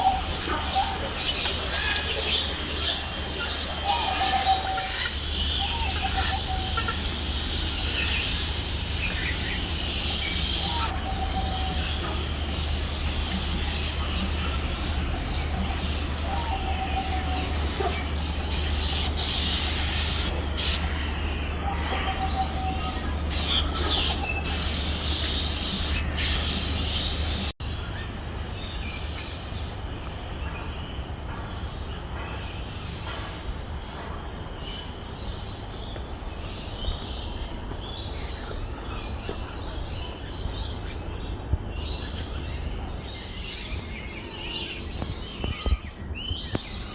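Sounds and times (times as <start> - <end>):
bird chirps: 0.0 - 27.5.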